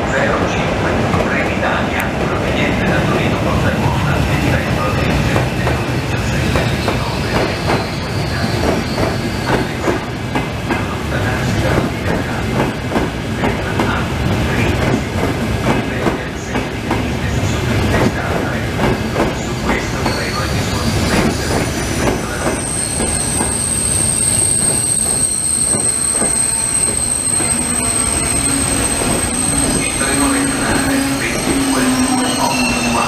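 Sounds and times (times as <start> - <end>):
train wheels knocking over rail joints: 6.5 - 7.9, 11.7 - 14.0, 18.0 - 20.2
high steady squeal: 19.4 - 33.0.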